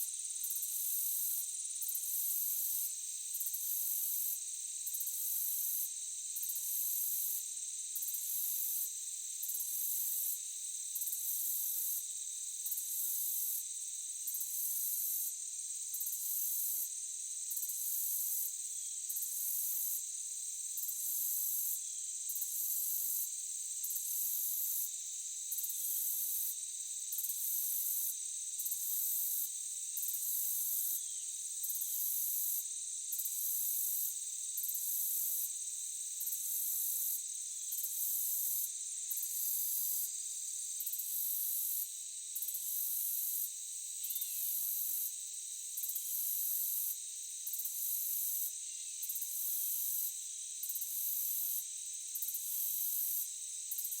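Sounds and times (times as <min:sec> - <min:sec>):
insects chirring: 0:17.4 - 0:35.6, 0:36.2 - 0:49.3.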